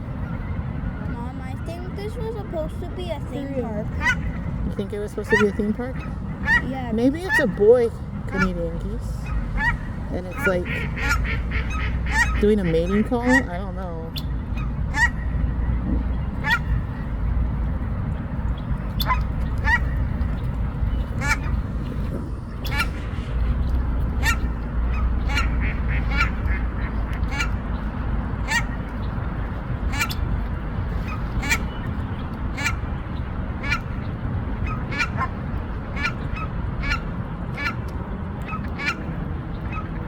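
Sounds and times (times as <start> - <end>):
steady low rumble: 0.0 - 40.0
geese honking: 3.8 - 17.5, 18.6 - 40.0.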